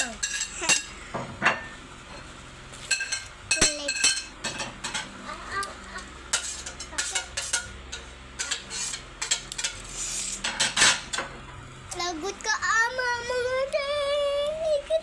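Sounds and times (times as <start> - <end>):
spoons scraping ice cream containers: 8.4 - 10.7.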